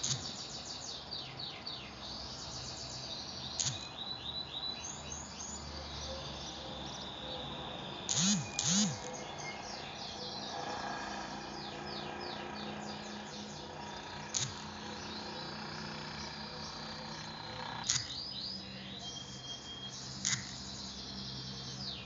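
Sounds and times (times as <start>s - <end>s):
bird chirping: 0.0s - 22.0s
steady low hum: 8.0s - 22.0s
short sharp clicks: 8.1s - 9.1s, 14.4s - 14.8s, 20.2s - 20.6s.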